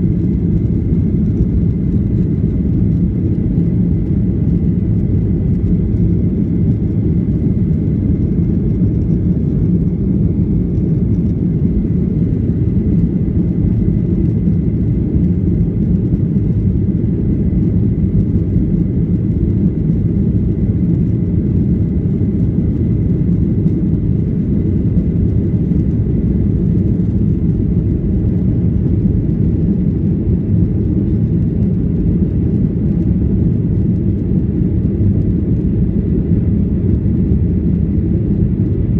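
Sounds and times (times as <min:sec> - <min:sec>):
jet engine cabin rumble: 0:00.0 - 0:38.9.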